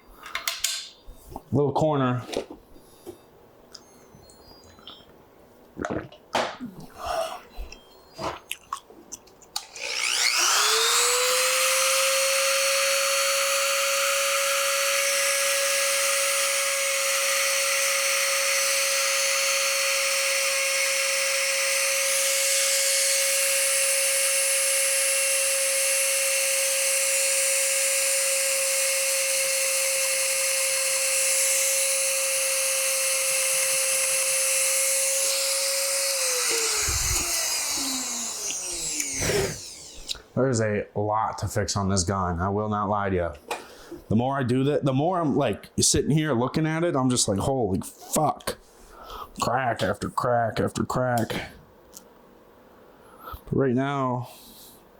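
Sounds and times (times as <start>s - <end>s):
rotary power tool whining: 9.6s - 40.2s.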